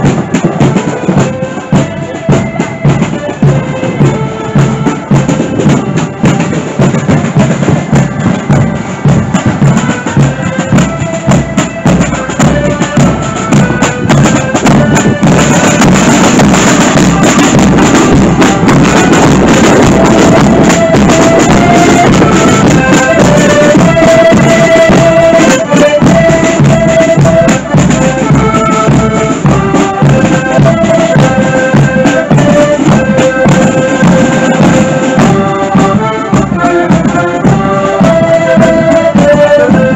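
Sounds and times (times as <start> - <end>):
accordions playing melody: 0.0 - 39.9
drum beat: 0.0 - 39.9.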